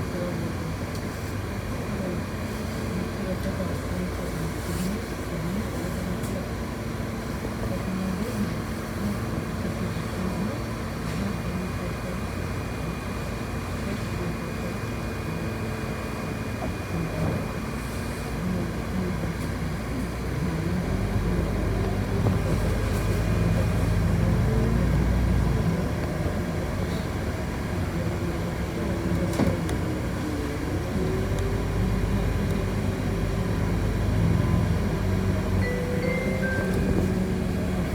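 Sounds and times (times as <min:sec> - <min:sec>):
bus motor running: 0:00.0 - 0:37.9
road and rattle noise: 0:16.1 - 0:37.9.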